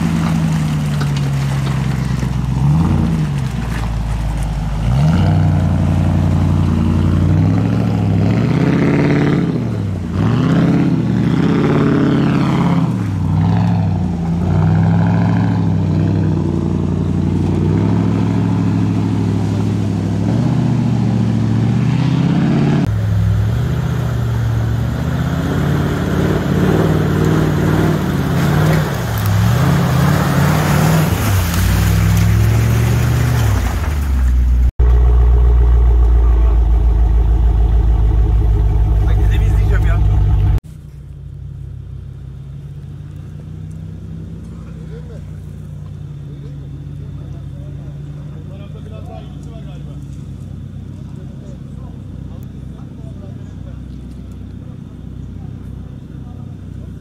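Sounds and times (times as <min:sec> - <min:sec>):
engine revving under load: 0:04.4 - 0:33.9, 0:34.8 - 0:40.6.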